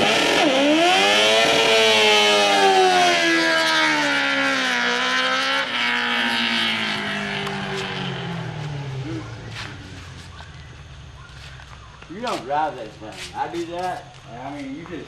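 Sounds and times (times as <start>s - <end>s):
engine running high: 0.0s - 11.6s.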